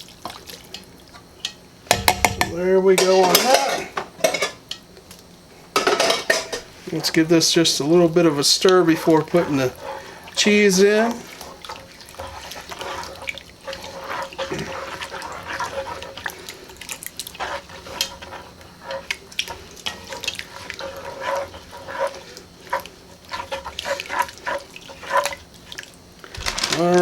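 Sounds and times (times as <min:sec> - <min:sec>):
wet soup being stirred: 0:00.0 - 0:27.0
utensil scraping a pot: 0:05.8 - 0:25.8.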